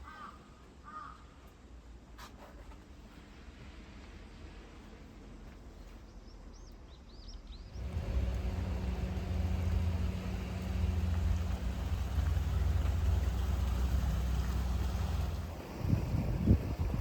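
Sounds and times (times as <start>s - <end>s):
car driving: 7.7s - 16.2s.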